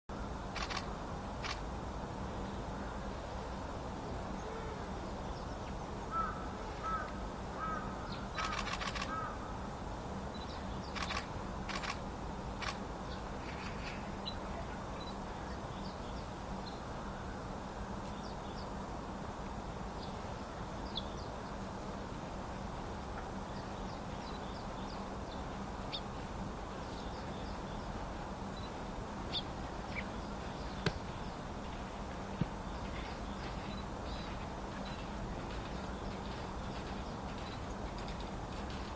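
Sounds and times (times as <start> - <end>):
low background hum: 0.1 - 38.9
small birds chirping: 10.3 - 11.9.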